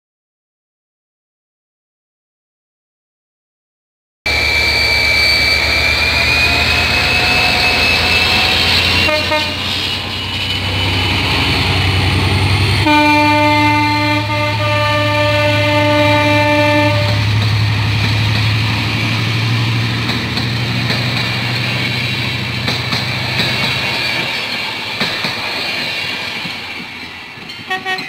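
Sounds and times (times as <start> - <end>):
train wheels rumbling on rails: 4.3 - 28.0
diesel engine hum: 5.6 - 23.6
locomotive horn: 6.8 - 9.9, 12.7 - 17.4, 27.7 - 28.0.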